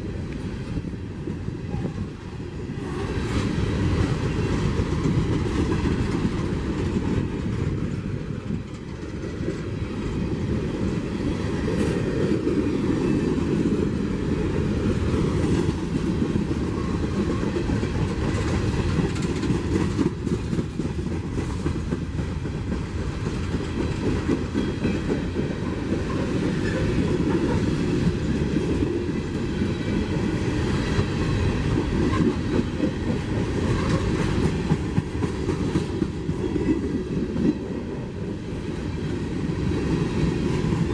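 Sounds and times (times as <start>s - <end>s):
freight train rolling by: 0.0s - 40.9s
wheels clacking over rail joints: 0.4s - 40.9s.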